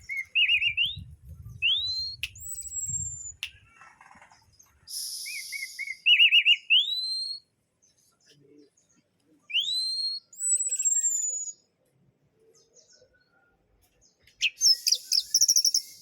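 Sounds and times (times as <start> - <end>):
thrush singing whistled notes: 0.0 - 3.6, 4.9 - 7.5, 14.4 - 16.0.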